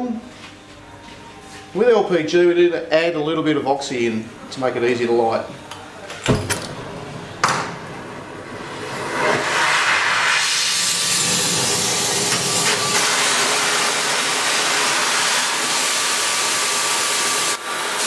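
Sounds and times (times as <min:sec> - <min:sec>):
cutting torch flame hissing: 0:08.0 - 0:18.0.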